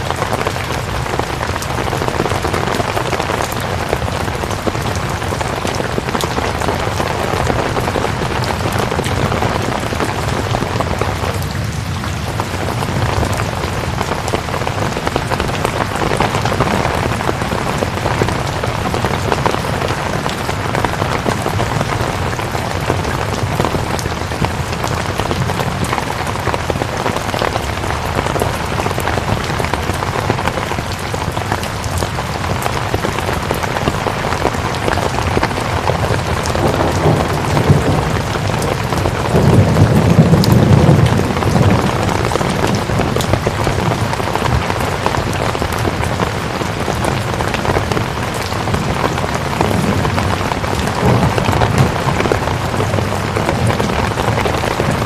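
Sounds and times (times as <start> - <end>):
steady rain patter: 0.0 - 55.0.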